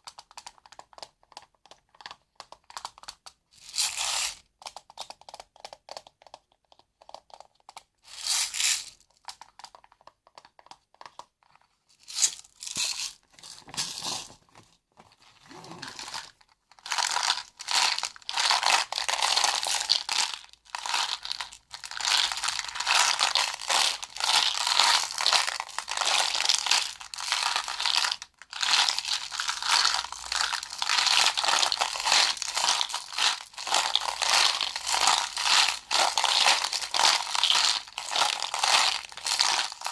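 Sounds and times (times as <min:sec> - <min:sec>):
crinkling and crackling: 0:09.0 - 0:39.9.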